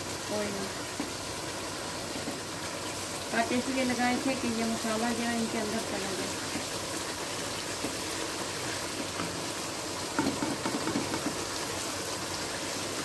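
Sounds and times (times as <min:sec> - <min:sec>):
sizzling hiss in a wok: 0:00.0 - 0:13.0
spatula knocking against a pan: 0:10.2 - 0:11.5.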